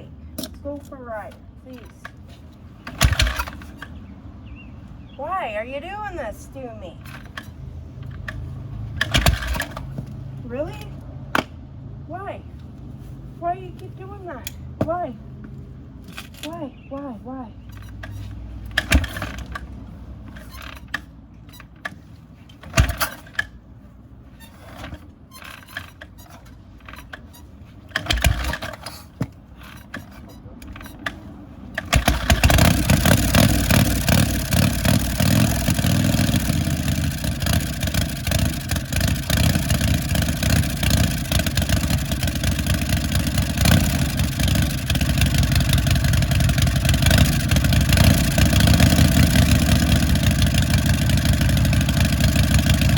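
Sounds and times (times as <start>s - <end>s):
motorcycle engine idling: 2.6s - 5.4s, 6.9s - 11.0s, 30.6s - 52.9s
kick-start thumps: 9.0s - 10.2s.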